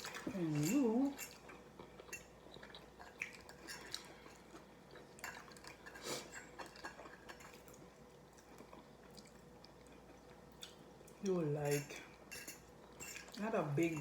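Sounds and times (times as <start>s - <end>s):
chewing: 0.0s - 11.2s.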